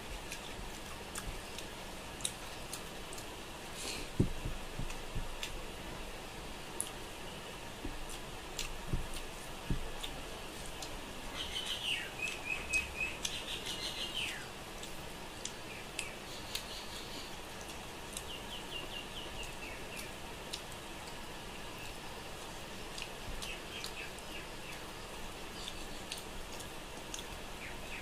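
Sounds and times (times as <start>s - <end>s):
high chirping: 11.3s - 14.5s.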